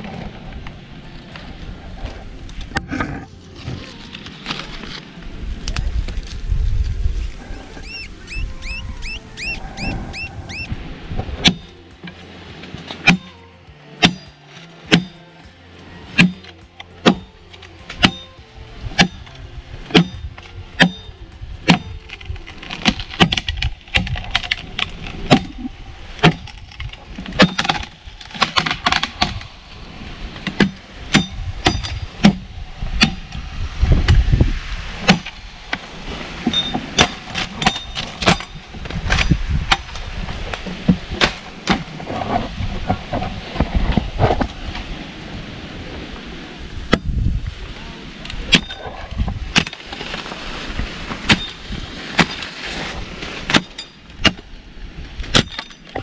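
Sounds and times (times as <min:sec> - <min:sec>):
low rumbling: 0:00.0 - 0:56.0
branches cracking and breaking: 0:03.4 - 0:07.4, 0:21.7 - 0:30.9, 0:49.2 - 0:56.0.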